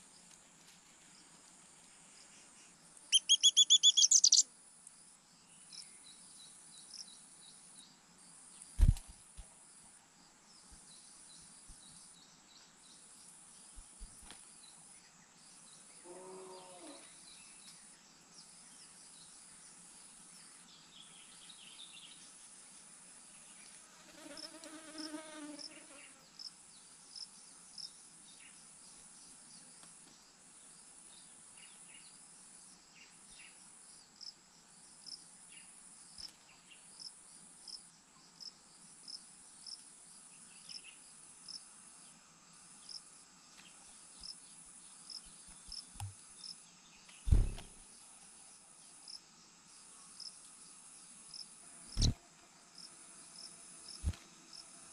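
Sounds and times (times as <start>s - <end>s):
insects buzzing: 0.0s - 4.5s, 7.0s - 54.9s
short chirp: 3.2s - 4.4s
loud thump: 47.3s - 47.8s.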